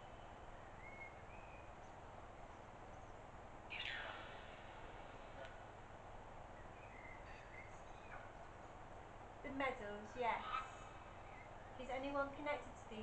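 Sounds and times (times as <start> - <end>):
small bird chirping: 0.0 - 5.6, 6.5 - 8.6, 10.1 - 11.9
low room hiss: 0.0 - 13.0
bird falling call: 3.7 - 4.9.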